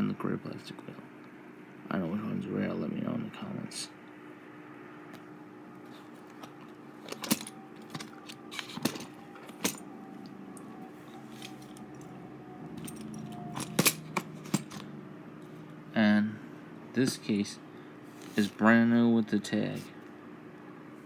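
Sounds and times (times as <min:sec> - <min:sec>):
faint steady hum: 0:00.0 - 0:21.0
metal toy cars clinking: 0:07.0 - 0:09.8, 0:12.8 - 0:14.8.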